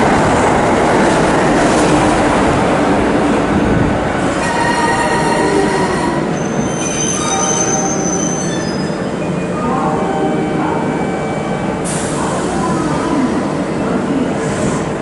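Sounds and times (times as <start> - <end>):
electric train rumbling on rails: 0.0 - 15.0
high wheel squeal: 4.5 - 9.1.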